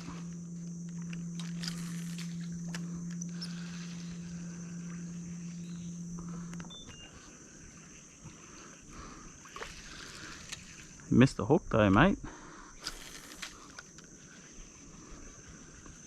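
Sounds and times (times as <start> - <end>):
high insect drone: 0.0 - 16.0
low steady hum: 0.0 - 16.0
faint clicks: 9.4 - 11.0.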